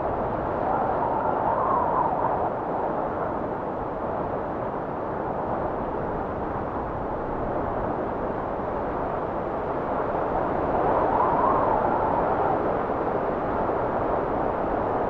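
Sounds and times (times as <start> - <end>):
blizzard wind blowing: 0.0 - 15.0.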